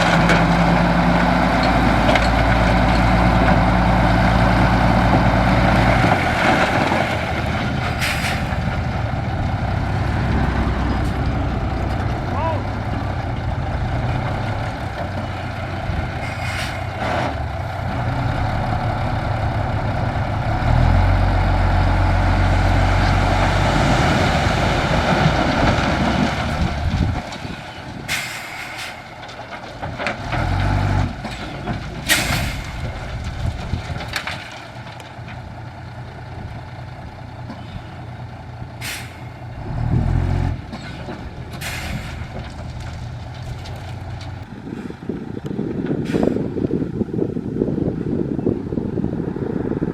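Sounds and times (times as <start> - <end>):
dump truck diesel engine revving: 0.0 - 29.2, 30.0 - 33.7, 35.6 - 49.9
air brake hisses: 38.8 - 39.2.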